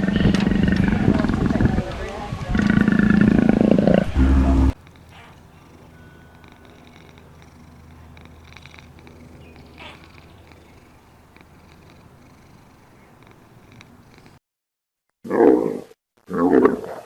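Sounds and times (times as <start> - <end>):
cat purring: 0.0 - 1.8, 2.5 - 14.4
faint clicks: 4.8 - 14.4.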